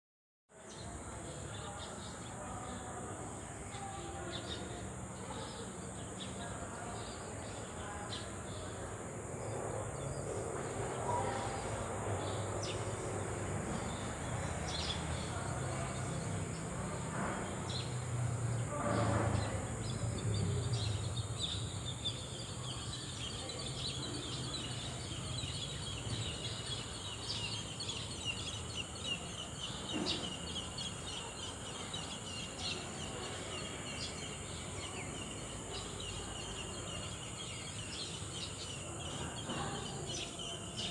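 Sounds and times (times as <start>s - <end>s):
birds chirping: 0.7s - 40.9s.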